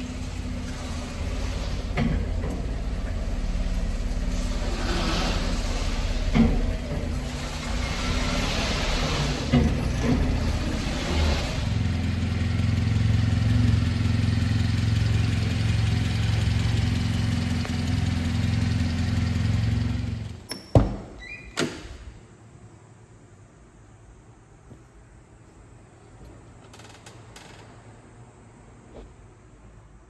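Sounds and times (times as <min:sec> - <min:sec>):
truck engine idling: 0:00.0 - 0:20.4.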